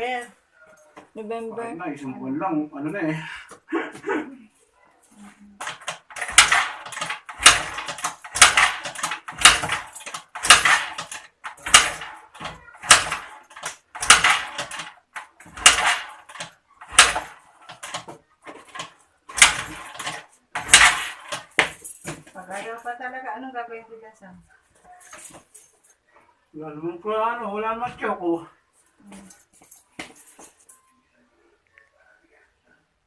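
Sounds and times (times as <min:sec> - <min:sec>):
scooter being kick-started: 0:05.6 - 0:21.7.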